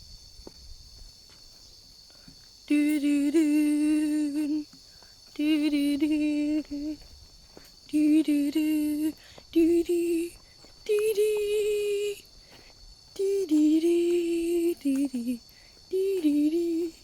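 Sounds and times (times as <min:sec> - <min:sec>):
high insect drone: 0:00.0 - 0:17.0
young voice humming: 0:02.7 - 0:04.7, 0:05.3 - 0:07.0, 0:07.9 - 0:12.3, 0:13.1 - 0:17.0.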